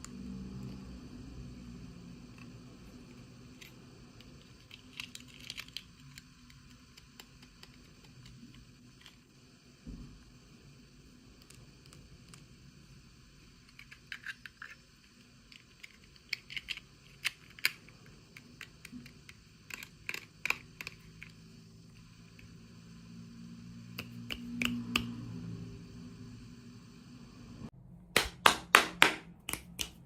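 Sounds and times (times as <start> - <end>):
plastic toy pieces clicking: 4.4 - 8.4, 15.5 - 21.3.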